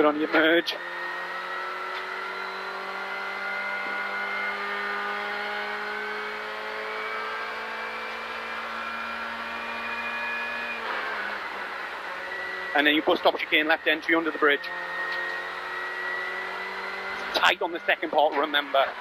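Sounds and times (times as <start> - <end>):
rally car engine pulling under load: 0.0 - 19.0.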